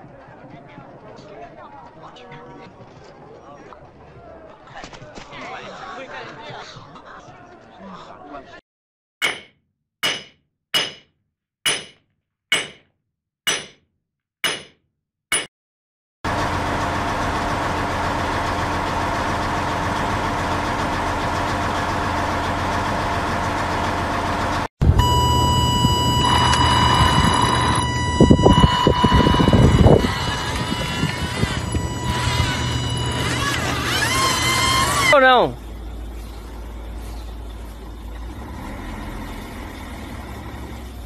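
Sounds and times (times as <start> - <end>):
hammer striking metal wheel: 9.2 - 11.1, 11.7 - 12.9, 13.5 - 13.8, 14.4 - 15.5
truck engine running: 16.3 - 41.0
steady high tone: 24.8 - 35.6.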